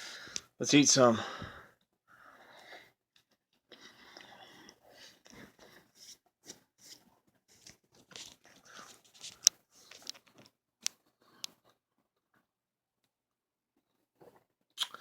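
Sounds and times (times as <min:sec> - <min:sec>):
person chewing food: 0:14.2 - 0:15.0.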